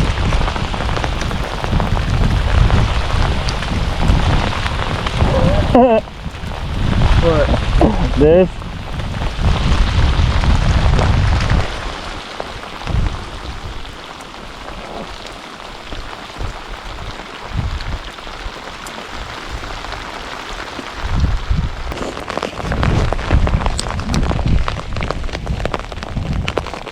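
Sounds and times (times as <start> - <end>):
heavy low rumble: 0.0 - 11.8
steady rain falling: 0.0 - 26.9.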